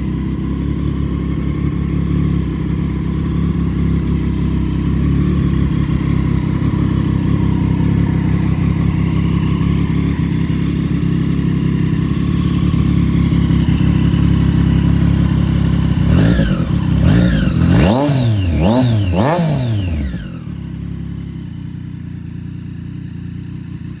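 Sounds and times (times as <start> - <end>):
motorcycle engine idling and revving: 0.0 - 24.0.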